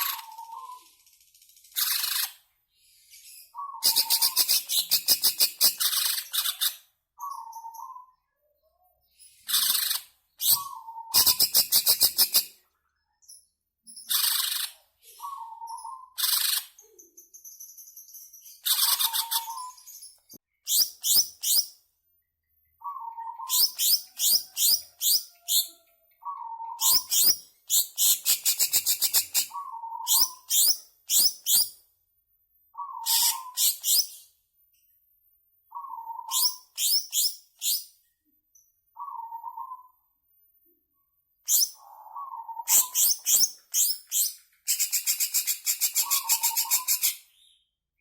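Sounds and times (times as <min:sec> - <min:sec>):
bird singing whistles and trills: 0:03.1 - 0:08.2, 0:09.2 - 0:12.5, 0:14.1 - 0:20.0, 0:22.8 - 0:31.8, 0:32.7 - 0:34.4, 0:41.5 - 0:47.7.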